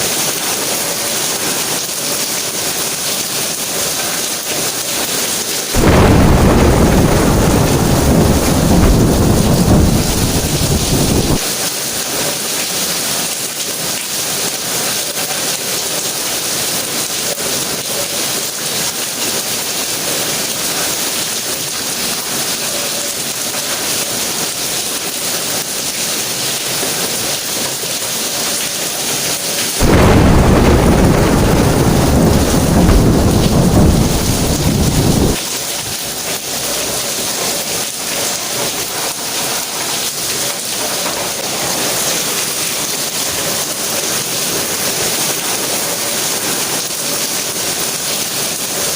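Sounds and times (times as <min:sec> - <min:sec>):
rain hiss: 0:00.0 - 0:48.9
thunder rumble: 0:05.8 - 0:11.5, 0:29.8 - 0:35.4.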